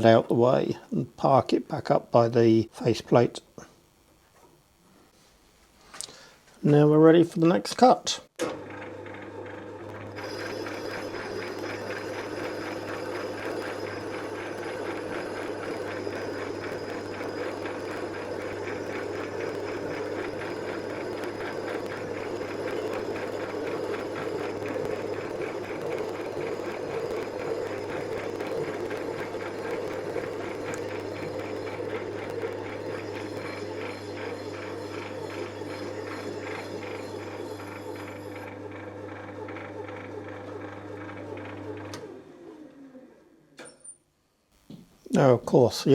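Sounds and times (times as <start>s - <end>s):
lathe boring hum: 8.4s - 43.2s.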